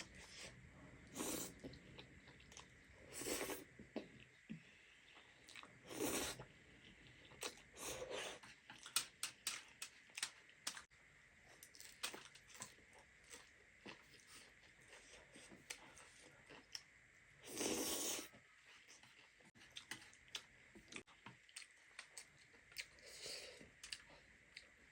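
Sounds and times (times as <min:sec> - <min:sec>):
person chewing: 0:11.6 - 0:24.7.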